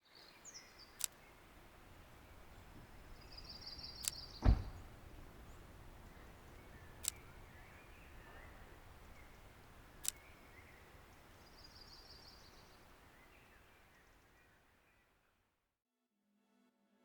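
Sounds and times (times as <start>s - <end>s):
bird chirps: 0.0s - 15.0s
deep thud: 4.2s - 5.5s.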